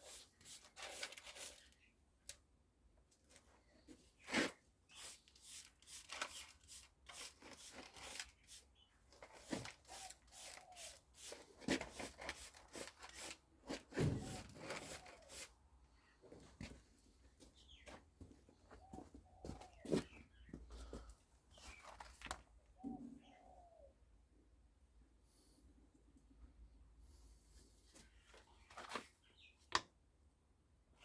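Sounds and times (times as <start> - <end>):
scraping and rubbing: 9.2 - 15.5.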